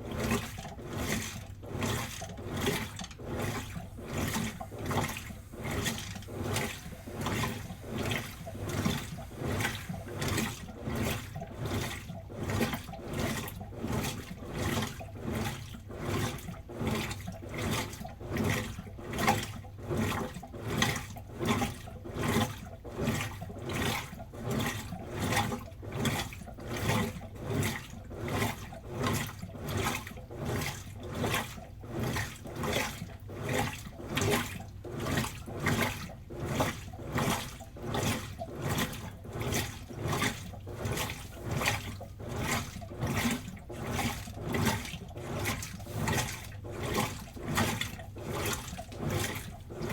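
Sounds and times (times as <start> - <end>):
motor hum: 0.0 - 13.3
washing machine sloshing: 0.0 - 49.9.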